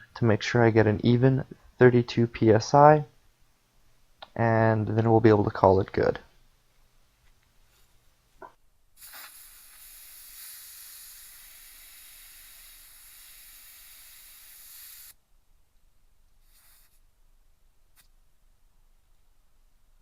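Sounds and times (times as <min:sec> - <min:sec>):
air hissing from tire valve: 0:09.0 - 0:15.2, 0:16.4 - 0:17.0.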